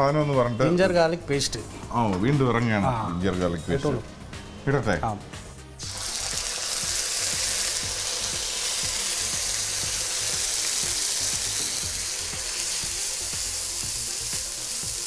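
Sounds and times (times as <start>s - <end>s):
paste sizzling in hot oil: 5.8s - 15.0s.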